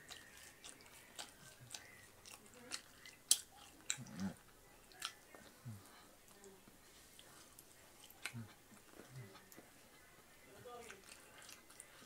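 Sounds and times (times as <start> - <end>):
person chewing food: 0.0 - 12.0
wet mouth clicks and smacks: 0.1 - 4.2.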